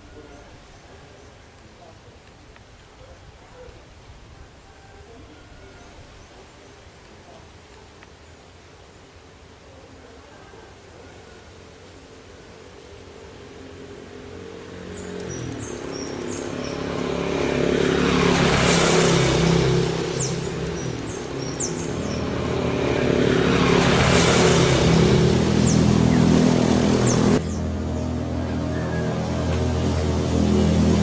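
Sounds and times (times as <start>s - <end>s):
vehicles passing on road: 0.0s - 31.0s
small birds chirping: 14.3s - 18.0s, 18.6s - 29.2s.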